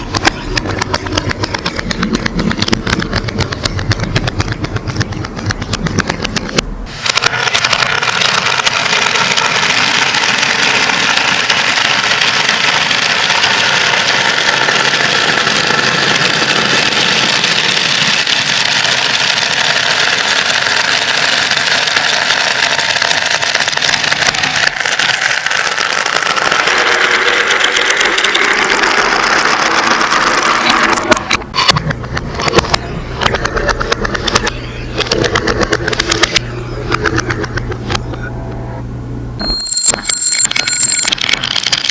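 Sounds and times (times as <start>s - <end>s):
glass marbles clattering: 40.2s - 41.9s.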